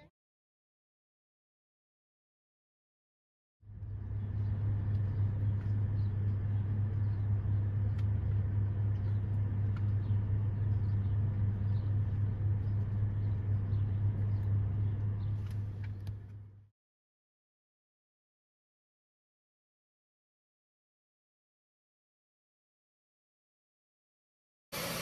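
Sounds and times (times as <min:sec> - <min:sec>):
car engine idling: 0:03.7 - 0:16.6.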